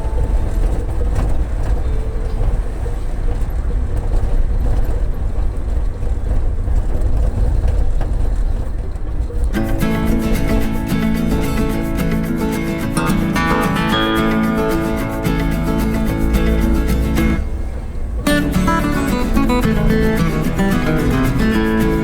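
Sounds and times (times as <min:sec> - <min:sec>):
guitar music: 0:00.0 - 0:02.8, 0:09.6 - 0:22.0
road vehicle rumble: 0:00.0 - 0:22.0.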